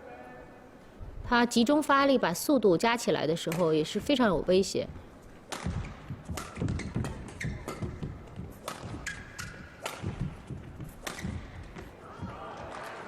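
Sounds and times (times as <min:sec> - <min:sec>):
racket striking shuttlecock: 0:05.4 - 0:12.0
footsteps on court: 0:05.5 - 0:13.0
shoes squeaking on floor: 0:05.6 - 0:12.4.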